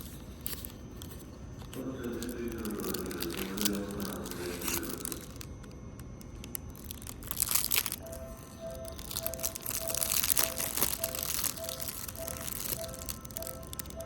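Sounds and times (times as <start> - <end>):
vending machine electronic tune: 0.0 - 14.0
two-note electronic beep: 8.0 - 14.0.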